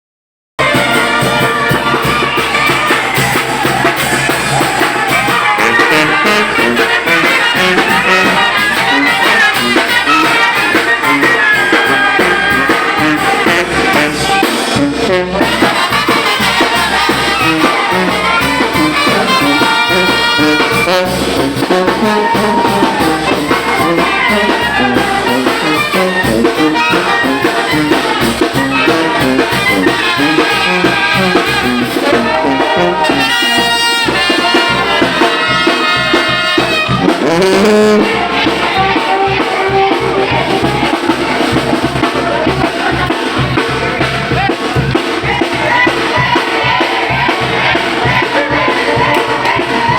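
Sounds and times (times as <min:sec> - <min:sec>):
brass band playing: 0:00.6 - 0:49.9
trumpets and trombones: 0:00.6 - 0:49.9.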